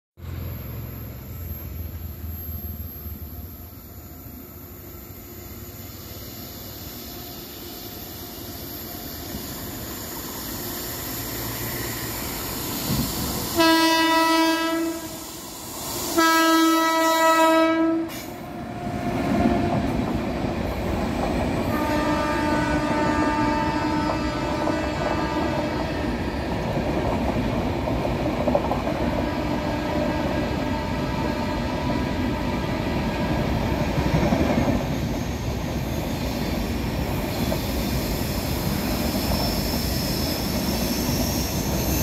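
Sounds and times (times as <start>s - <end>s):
train rumble: 0.2s - 42.0s
train wheel clatter: 8.9s - 13.6s, 19.2s - 32.4s, 33.1s - 42.0s
locomotive horn blasts: 13.6s - 15.2s, 16.2s - 19.0s, 21.7s - 26.2s, 29.2s - 32.8s.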